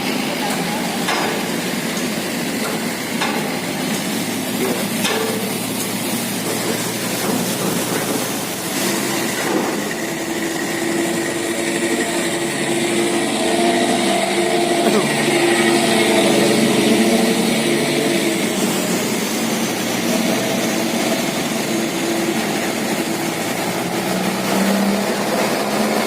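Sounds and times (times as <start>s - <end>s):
boat engines running: 0.0s - 26.0s
steady engine hum: 0.0s - 26.0s.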